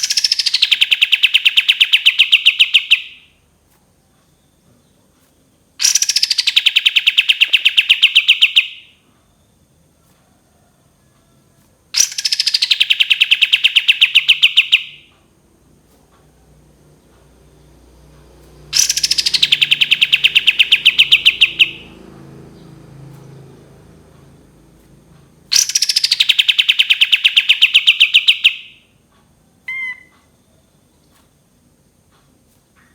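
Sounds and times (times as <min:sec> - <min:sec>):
songbird trilling: 0:00.0 - 0:03.2, 0:05.8 - 0:08.9, 0:12.0 - 0:15.1, 0:18.7 - 0:22.0, 0:25.5 - 0:28.8, 0:29.7 - 0:30.2
faint bird chirp: 0:03.9 - 0:15.1, 0:18.7 - 0:22.0, 0:29.5 - 0:31.3.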